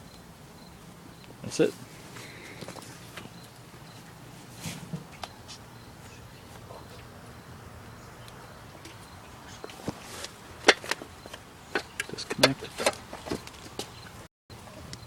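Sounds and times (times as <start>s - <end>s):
short rustle: 4.3s - 5.7s.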